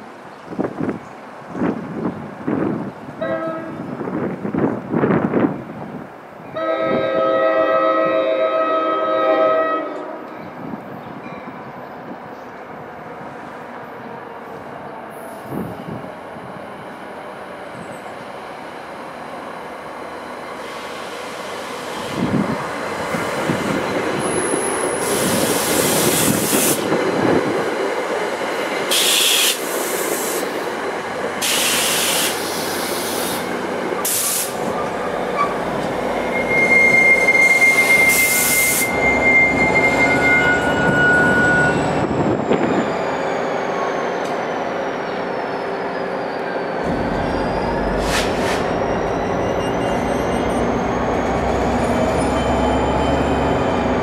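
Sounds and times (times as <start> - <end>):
rumble of train cars: 0.0 - 54.0
train wheels and brakes squealing: 20.5 - 27.0, 28.7 - 30.5, 31.4 - 54.0.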